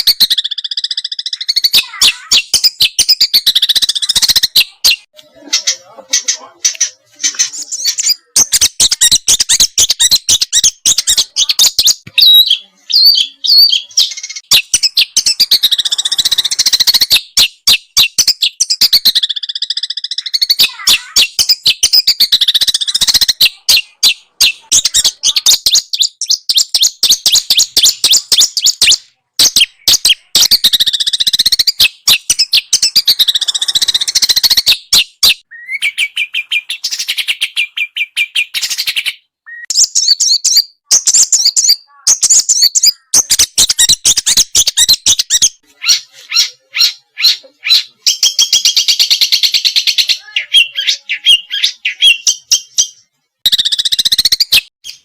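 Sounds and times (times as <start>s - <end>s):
songbird singing: 0.0s - 55.0s.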